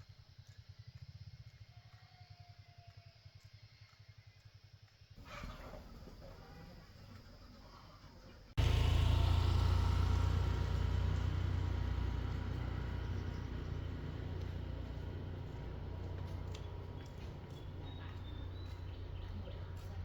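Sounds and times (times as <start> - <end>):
vehicle engine drone: 5.2 - 20.0.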